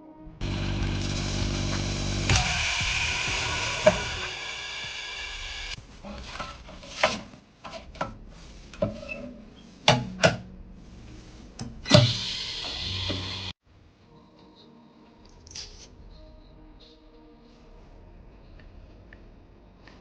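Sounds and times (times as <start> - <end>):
steady humming tone: 0.0 - 6.2.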